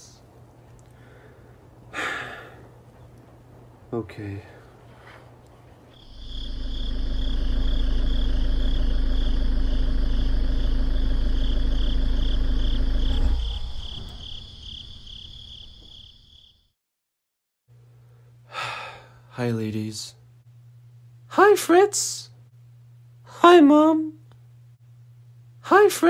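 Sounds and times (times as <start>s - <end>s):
crickets chirping: 4.4s - 16.8s
car engine rumble: 6.4s - 14.4s.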